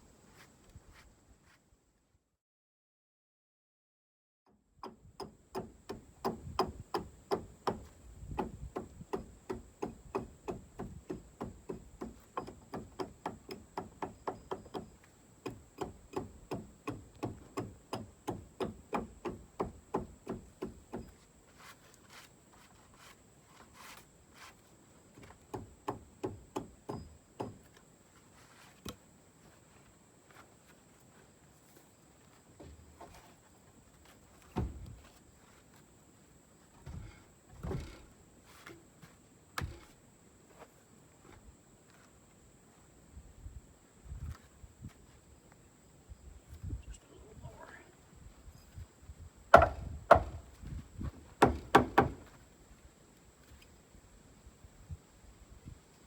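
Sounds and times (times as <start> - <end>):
hatchet chopping log: 5.2 - 21.0, 49.5 - 50.4, 51.4 - 52.2.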